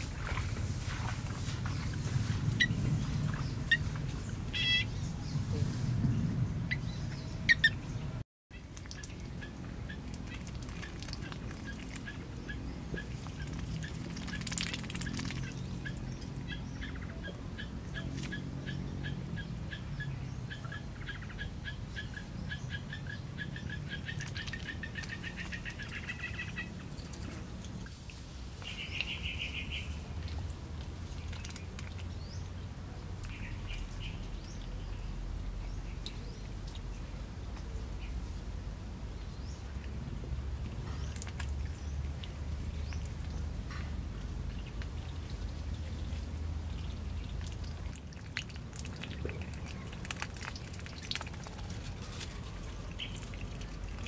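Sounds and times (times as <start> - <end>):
bird calling clear notes: 4.5 - 5.1.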